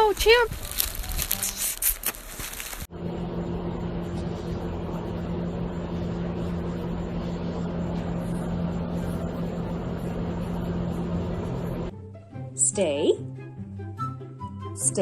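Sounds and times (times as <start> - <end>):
motor humming and whirring: 2.9 - 11.9.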